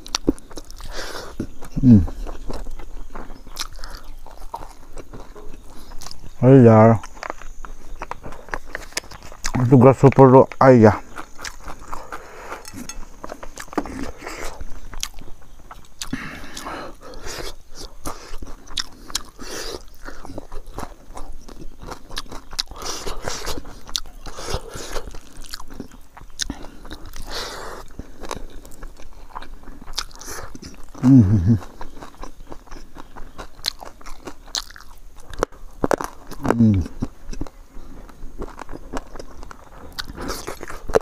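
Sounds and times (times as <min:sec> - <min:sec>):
chewing and crunching: 0:00.0 - 0:41.0
person humming mm: 0:01.8 - 0:02.2, 0:31.0 - 0:31.6, 0:36.4 - 0:36.9.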